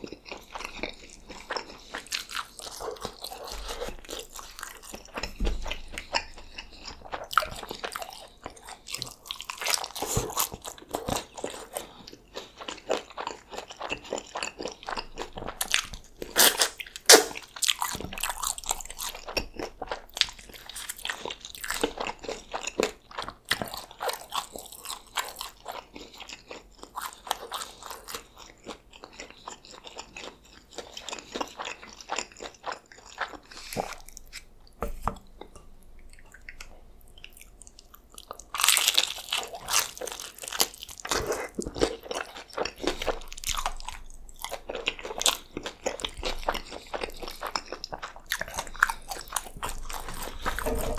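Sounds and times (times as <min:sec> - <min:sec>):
chewing and crunching food: 0:00.0 - 0:50.9.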